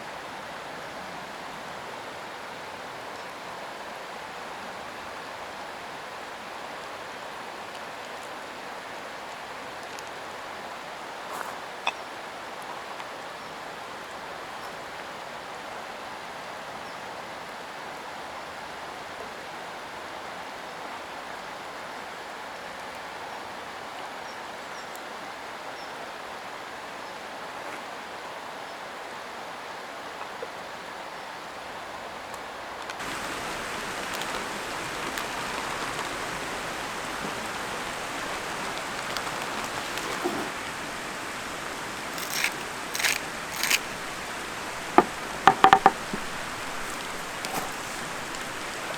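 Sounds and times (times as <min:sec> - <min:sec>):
stream water running: 0:32.9 - 0:48.9
short knocks: 0:42.1 - 0:48.7.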